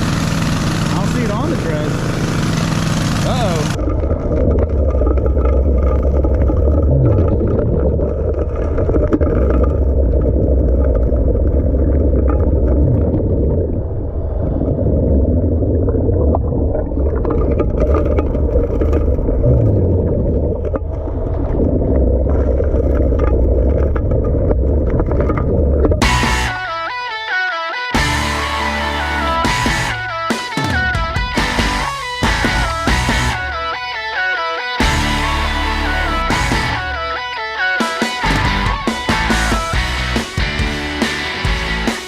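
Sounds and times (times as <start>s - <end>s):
dredge engines droning: 0.0s - 3.8s, 28.0s - 41.9s.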